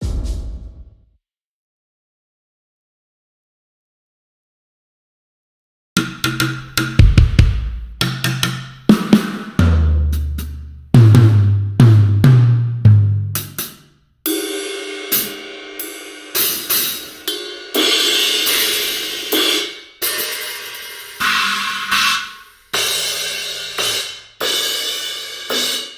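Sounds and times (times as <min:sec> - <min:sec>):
low drum hits: 0:00.0 - 0:01.0, 0:06.0 - 0:08.5
cymbal crashes: 0:14.3 - 0:25.9.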